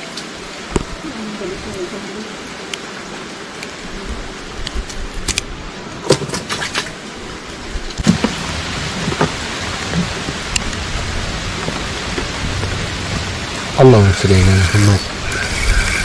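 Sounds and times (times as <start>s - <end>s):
rain on river and boat: 0.0s - 16.0s
clicks and knocks in boat: 8.0s - 10.8s.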